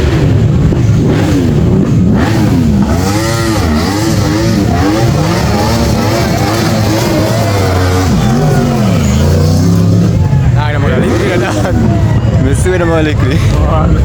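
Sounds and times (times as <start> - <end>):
car engines revving: 0.0 - 14.0.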